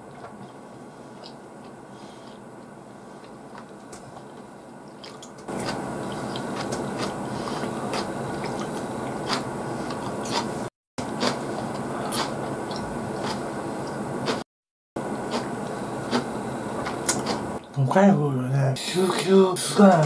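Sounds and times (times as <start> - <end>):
wet chewing mouth clicks: 3.2 - 10.5, 12.1 - 13.4, 16.1 - 17.7.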